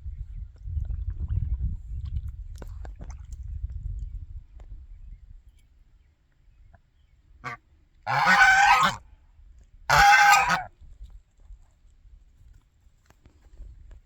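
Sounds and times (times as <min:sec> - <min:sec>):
goose honking: 0:07.4 - 0:09.0, 0:09.9 - 0:10.7.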